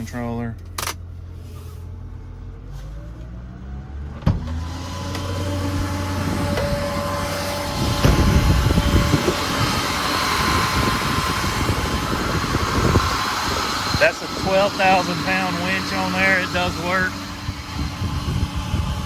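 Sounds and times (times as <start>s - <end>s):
electric winch motor whine: 3.9s - 19.0s.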